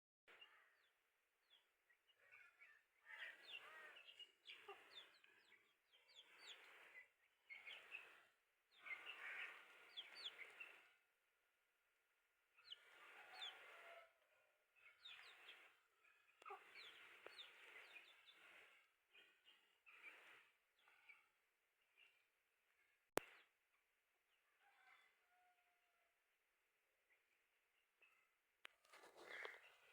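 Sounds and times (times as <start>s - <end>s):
chicks peeping: 9.5s - 10.8s.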